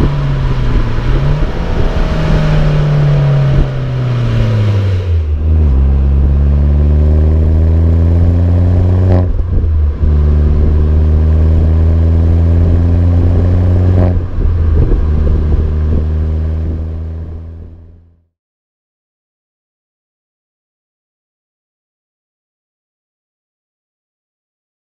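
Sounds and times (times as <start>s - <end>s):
car engine accelerating hard: 0.0s - 18.2s.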